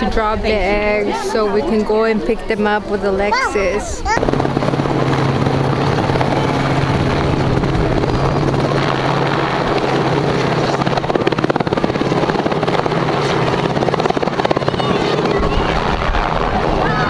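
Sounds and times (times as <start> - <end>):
helicopter rotor drone: 3.5 - 16.7.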